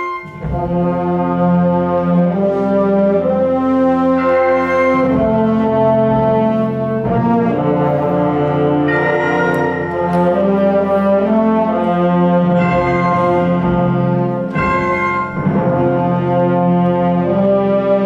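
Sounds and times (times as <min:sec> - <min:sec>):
wind band playing brass chords: 0:00.0 - 0:18.0.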